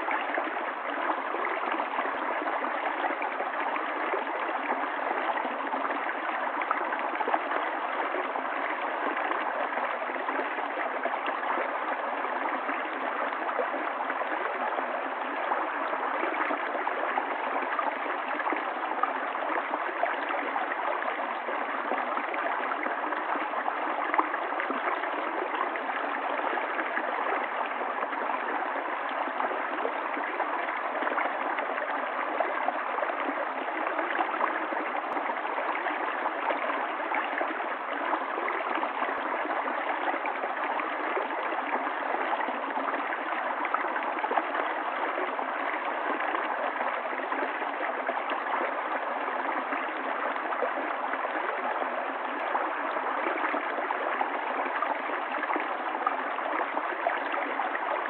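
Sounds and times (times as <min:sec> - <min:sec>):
stream of running water: 0:00.0 - 0:58.0.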